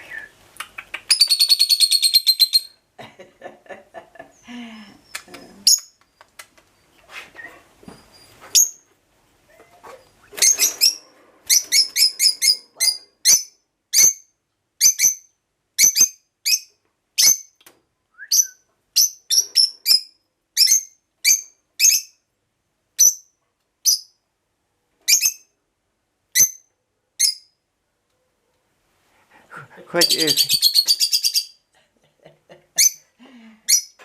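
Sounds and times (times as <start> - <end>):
parrot singing sharp high notes: 30.0 - 31.5.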